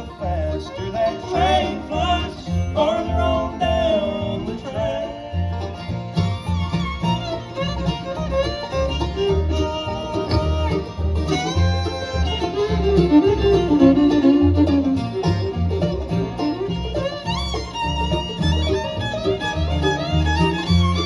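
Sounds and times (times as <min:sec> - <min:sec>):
alternating bass line: 0:00.0 - 0:21.0
banjo: 0:00.0 - 0:21.0
fiddle lead: 0:00.0 - 0:21.0
guitar: 0:00.0 - 0:21.0.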